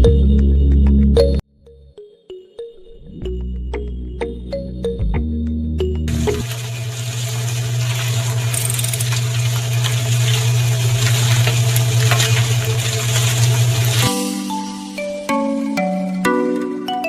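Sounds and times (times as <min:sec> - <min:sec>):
small motor humming and rattling: 0:06.2 - 0:14.1.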